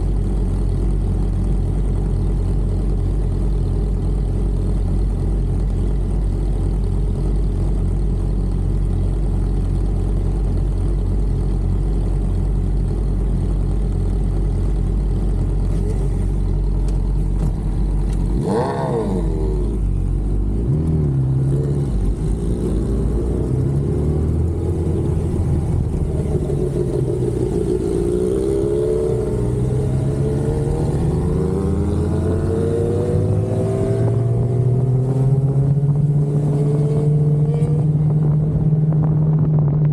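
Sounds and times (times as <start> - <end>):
motorcycle engine idling: 0.0 - 18.3
motorcycle revving and accelerating: 17.4 - 39.9.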